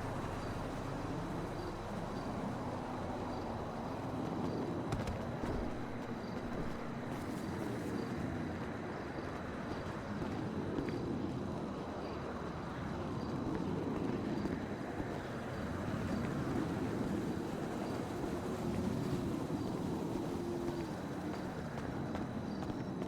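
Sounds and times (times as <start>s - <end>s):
car engines running: 0.0s - 23.0s.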